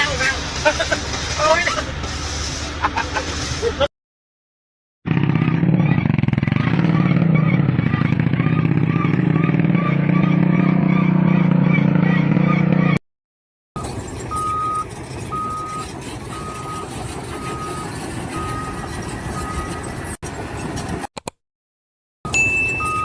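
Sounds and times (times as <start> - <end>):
engine and site noise: 0.0 - 3.9, 5.1 - 13.0, 13.8 - 21.4, 22.3 - 23.0
reversing alarm beeps: 14.3 - 19.8, 22.3 - 23.0.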